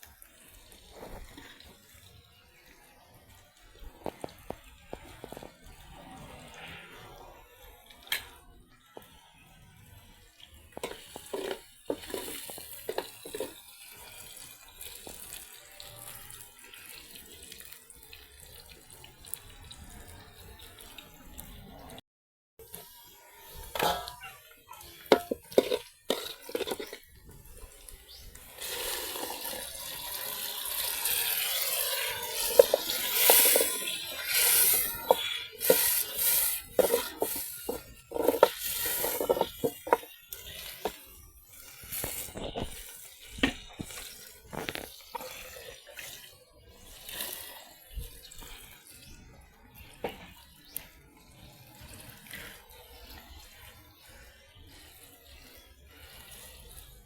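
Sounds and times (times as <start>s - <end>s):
water splashing and pouring: 10.4s - 21.9s, 22.7s - 57.0s
dishes clinking and knocking: 10.8s - 13.6s, 23.8s - 24.4s, 25.1s - 27.0s, 36.8s - 40.1s.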